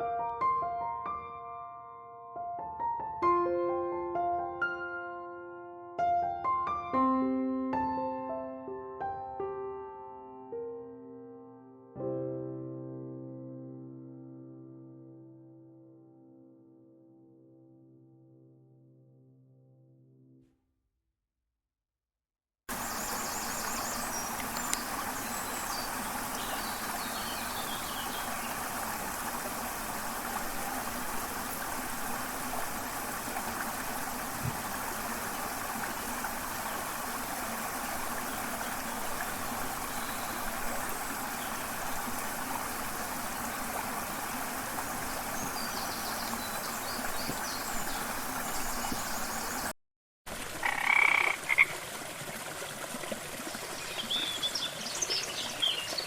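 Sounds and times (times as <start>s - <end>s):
frogs croaking: 22.7s - 49.7s, 50.5s - 51.8s.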